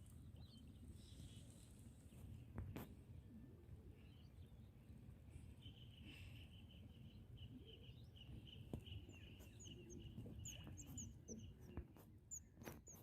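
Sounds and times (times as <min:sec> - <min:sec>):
outdoor noise: 0:00.0 - 0:13.0
bird chirping: 0:04.0 - 0:13.0.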